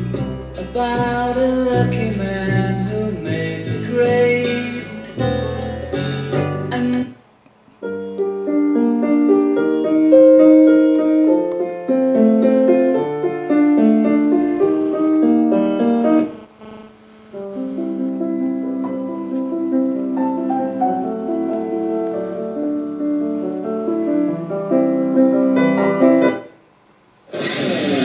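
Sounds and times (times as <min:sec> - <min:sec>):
solo piano music: 0:07.8 - 0:16.3, 0:17.4 - 0:26.6.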